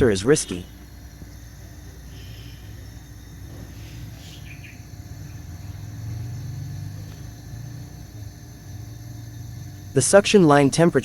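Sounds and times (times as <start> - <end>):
refrigerator compressor humming: 0.0 - 11.0
faint bird chirps: 1.7 - 6.7.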